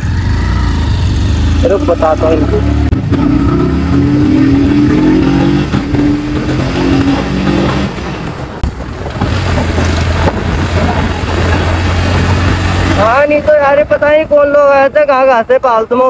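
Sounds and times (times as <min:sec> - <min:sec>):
motorcycle engine running: 0:00.0 - 0:14.9
wind rushing over microphone: 0:02.7 - 0:15.1.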